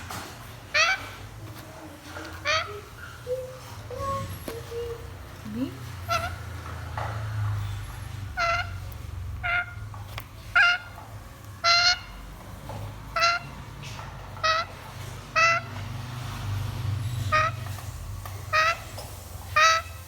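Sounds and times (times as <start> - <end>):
parrot call: 0.7 - 1.2, 2.3 - 5.3, 6.0 - 6.7, 8.3 - 11.0, 11.6 - 12.2, 13.2 - 15.8, 17.2 - 20.0.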